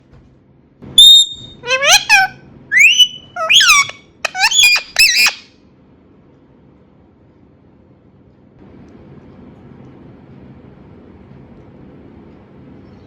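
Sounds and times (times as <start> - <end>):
parrot squawking: 1.0 - 5.5.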